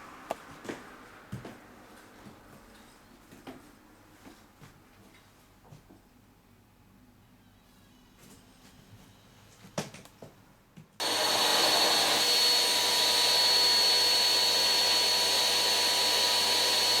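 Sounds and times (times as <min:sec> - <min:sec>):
vacuum cleaner running: 0:11.0 - 0:17.0.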